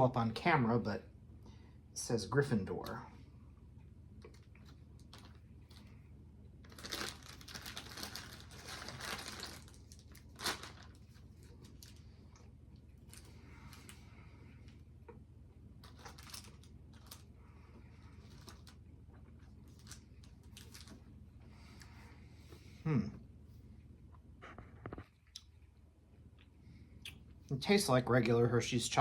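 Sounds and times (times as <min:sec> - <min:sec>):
chocolate wrapper crinkling: 0:04.3 - 0:05.9, 0:06.6 - 0:12.0, 0:15.8 - 0:17.3, 0:18.0 - 0:21.1.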